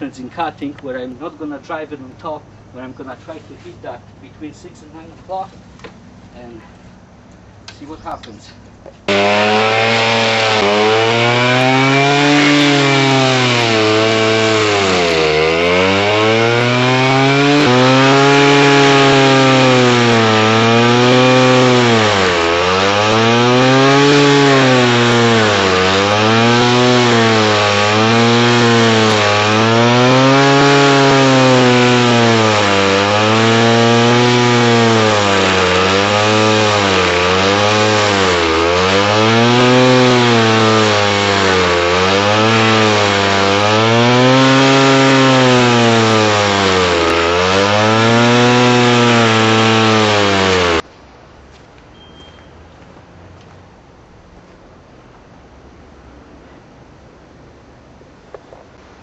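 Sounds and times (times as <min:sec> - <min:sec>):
wood being ground: 0:09.0 - 0:50.8
stump grinder engine labouring: 0:09.1 - 0:50.8.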